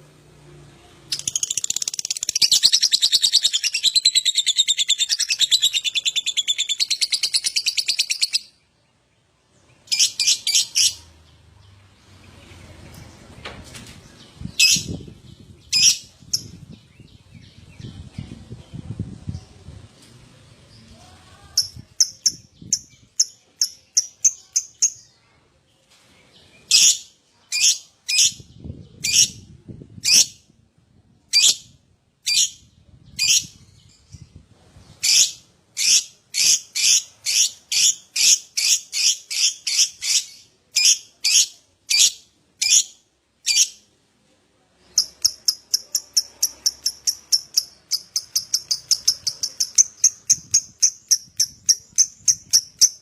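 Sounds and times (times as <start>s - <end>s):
bird chirping: 1.1s - 18.7s, 44.9s - 53.0s.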